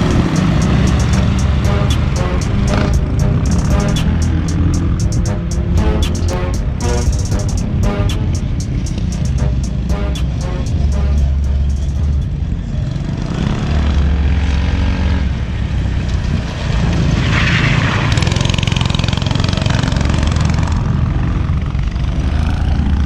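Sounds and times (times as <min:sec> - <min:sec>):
small kart engines running: 0:00.0 - 0:01.7, 0:12.3 - 0:23.0.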